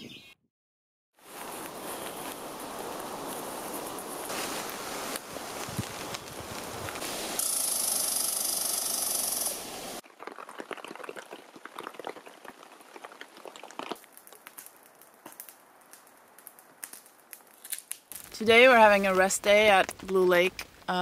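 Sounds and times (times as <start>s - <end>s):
heavy rain hissing: 1.2s - 10.0s
scattered raindrops ticking: 5.5s - 21.0s.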